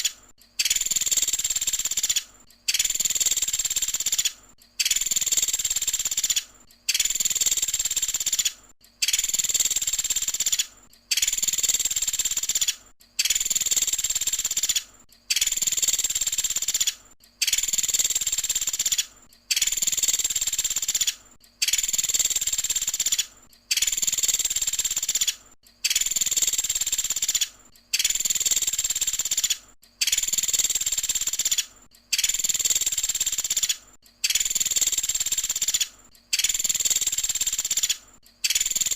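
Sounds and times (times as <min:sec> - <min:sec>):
woodpecker rattling call: 0:00.0 - 0:38.9.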